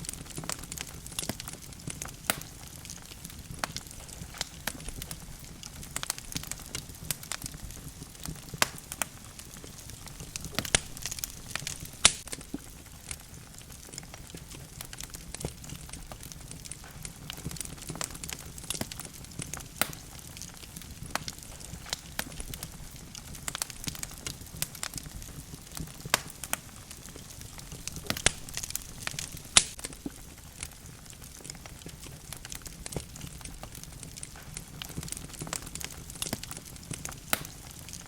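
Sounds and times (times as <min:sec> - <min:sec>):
logs crackling in fireplace: 0:00.0 - 0:38.0
low rumble of flame: 0:00.0 - 0:38.0.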